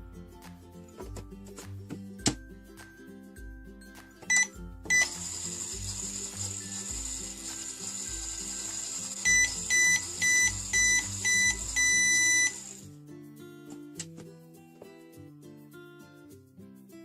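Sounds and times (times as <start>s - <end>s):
background music: 0.0s - 17.0s
toy microwave beeping: 4.3s - 12.8s.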